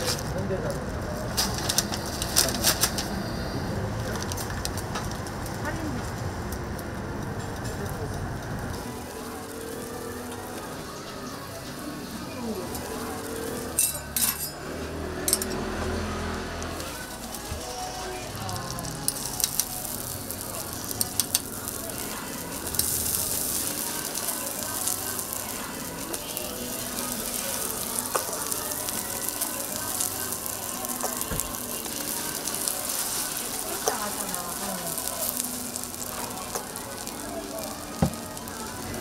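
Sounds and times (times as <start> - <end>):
food sizzling on a griddle: 0.0 - 3.4, 4.2 - 39.0.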